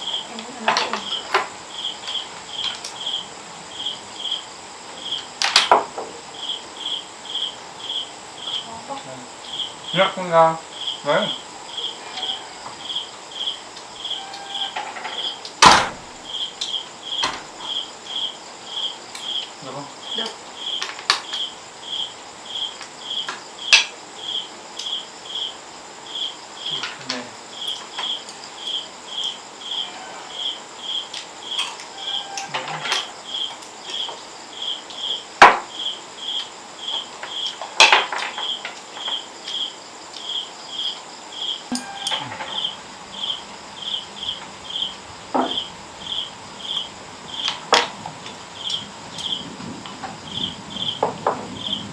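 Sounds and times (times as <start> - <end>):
cricket chirping: 0.0 - 51.9
sharp knocks: 15.6 - 16.2, 45.3 - 45.7.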